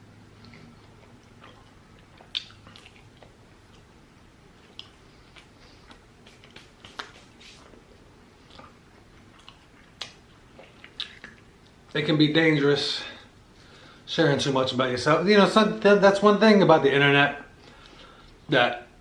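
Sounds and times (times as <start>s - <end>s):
person chewing food: 0.3s - 11.9s.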